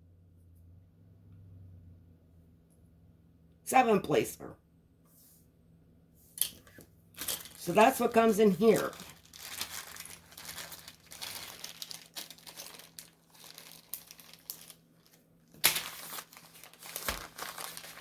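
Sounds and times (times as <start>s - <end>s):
plastic packaging crinkling: 7.2s - 18.0s.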